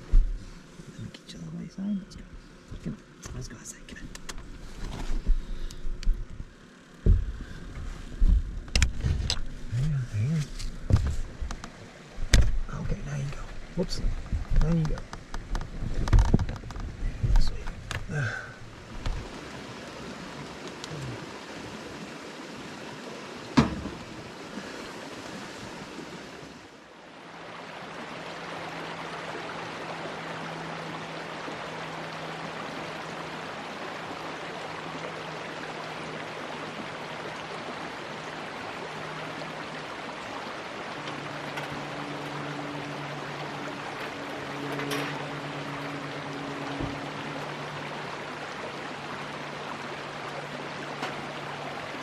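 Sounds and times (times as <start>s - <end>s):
rushing water: 0.0s - 52.0s
sharp knock: 23.6s - 24.0s.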